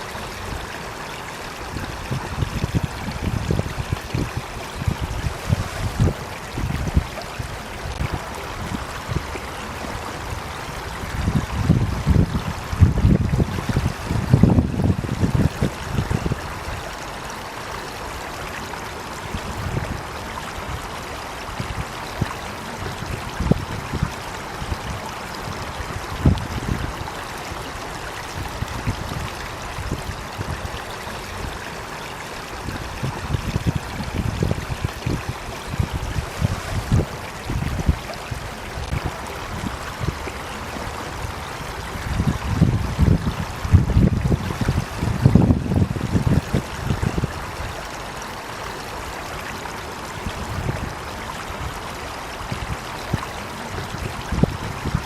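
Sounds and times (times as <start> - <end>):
water flowing: 0.0 - 55.0.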